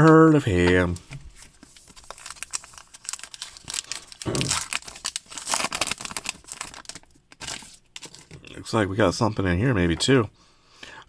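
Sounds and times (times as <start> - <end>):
wrapper crinkling and tearing: 1.3 - 8.5.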